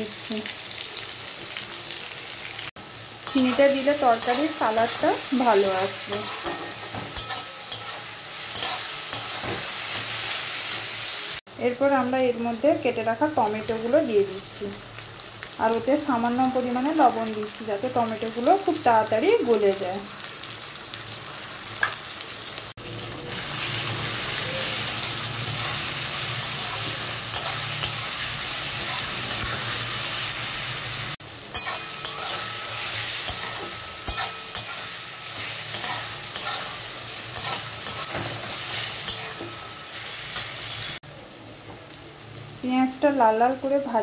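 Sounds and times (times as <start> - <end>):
onions sizzling in hot oil: 0.0 - 44.0
metal spatula scraping a pan: 3.2 - 11.0, 22.8 - 30.9, 31.5 - 41.0.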